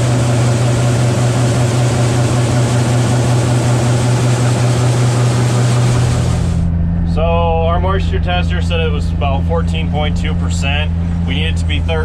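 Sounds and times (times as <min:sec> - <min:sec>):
diesel farm machinery running: 0:00.0 - 0:12.0.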